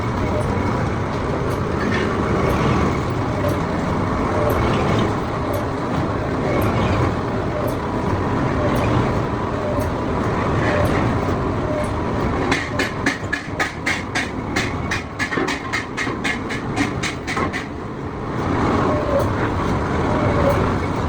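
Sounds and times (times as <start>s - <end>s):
sharp rapid knocks: 12.5s - 17.8s.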